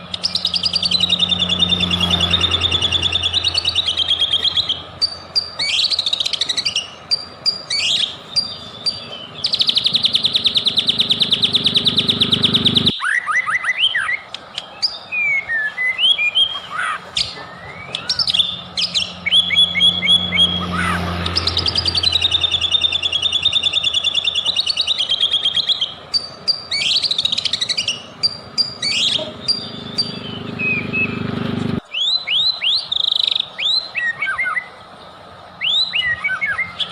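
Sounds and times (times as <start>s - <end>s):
background hum: 0.0s - 12.9s
songbird singing: 0.0s - 36.9s.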